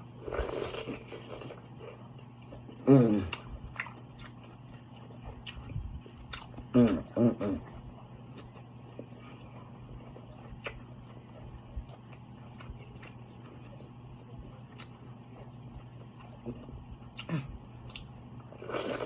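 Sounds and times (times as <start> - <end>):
steady low hum: 0.0 - 19.0
person humming mm: 2.8 - 3.4, 6.7 - 7.7.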